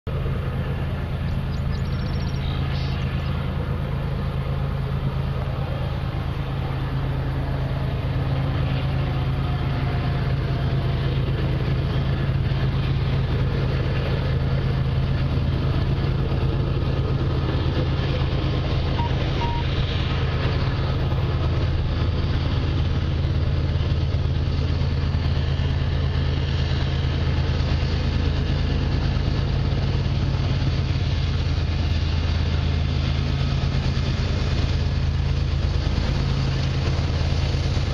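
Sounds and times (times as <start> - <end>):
diesel locomotive engine drone: 0.0 - 37.9.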